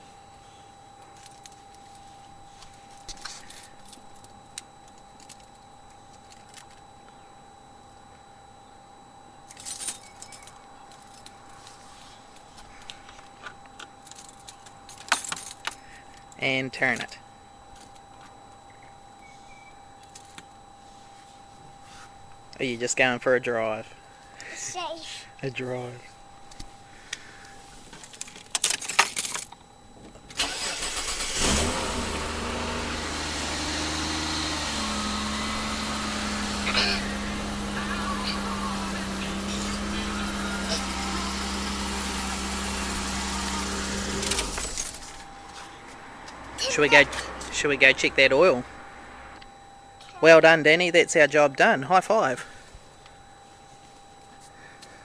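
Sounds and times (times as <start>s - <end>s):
car keys jangling: 28.0s - 29.6s, 30.4s - 45.2s
keys clinking: 28.0s - 29.6s.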